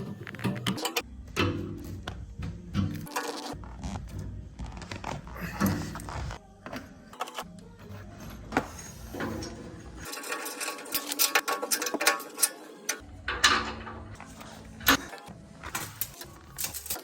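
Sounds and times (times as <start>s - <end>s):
metal tools clicking and clinking: 9.2s - 17.0s.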